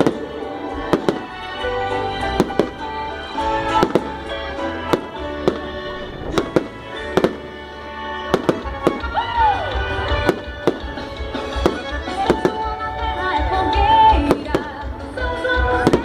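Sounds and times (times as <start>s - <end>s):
instrumental music: 0.0s - 16.0s
fireworks popping and cracking: 4.9s - 7.5s, 8.3s - 9.2s, 10.0s - 12.7s, 15.7s - 16.0s.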